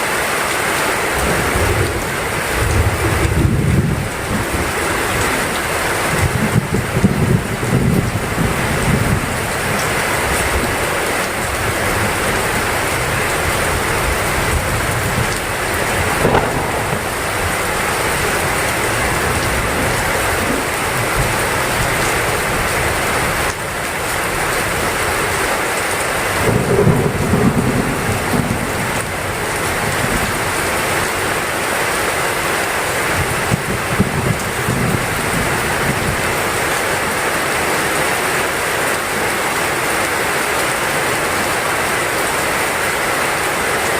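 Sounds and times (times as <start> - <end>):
heavy rain falling: 0.0 - 43.9
low thunder rumbles: 11.8 - 22.8, 26.4 - 30.3.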